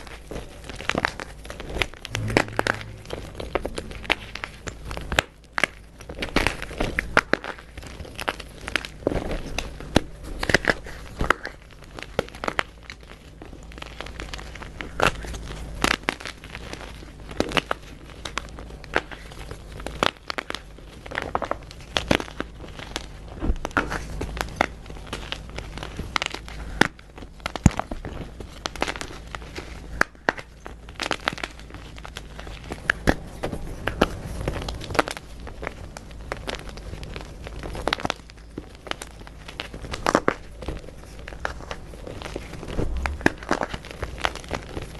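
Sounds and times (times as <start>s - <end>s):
faint low hum: 1.9s - 7.1s, 20.8s - 44.9s.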